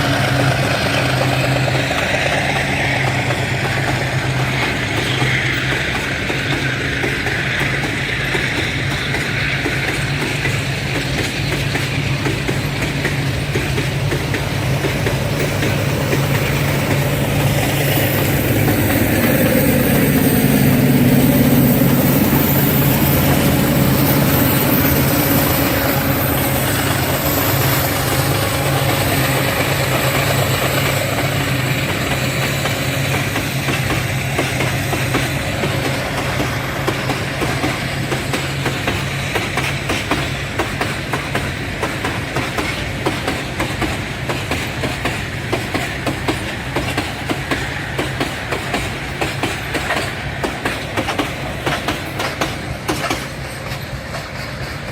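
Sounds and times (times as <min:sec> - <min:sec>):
diesel locomotive engines running: 0:00.0 - 0:54.9
train wagons clattering on rails: 0:00.0 - 0:54.9.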